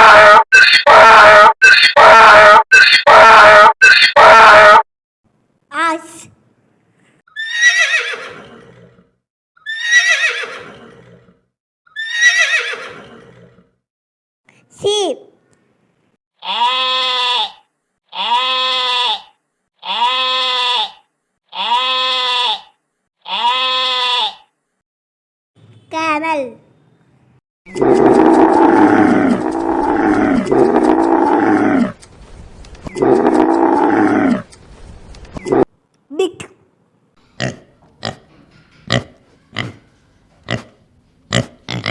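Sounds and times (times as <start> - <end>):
horse whinnying: 7.3 - 13.8
camel groaning: 27.8 - 32.0, 33.0 - 34.5.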